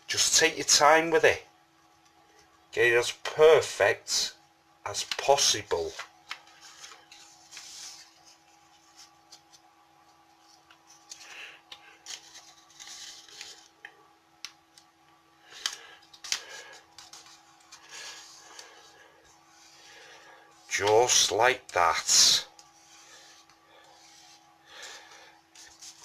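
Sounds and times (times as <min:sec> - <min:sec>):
paper rustling and scraping: 0:06.3 - 0:09.6, 0:10.4 - 0:13.8, 0:15.5 - 0:21.3, 0:22.6 - 0:26.0
sharp paper clicks: 0:15.5 - 0:17.9.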